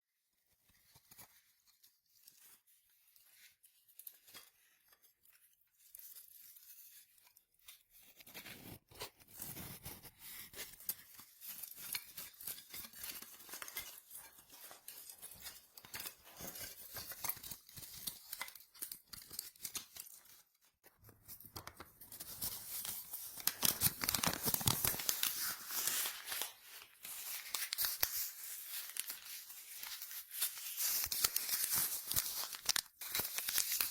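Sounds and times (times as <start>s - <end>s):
paper crumpling and tearing: 8.2s - 20.5s, 21.2s - 33.9s.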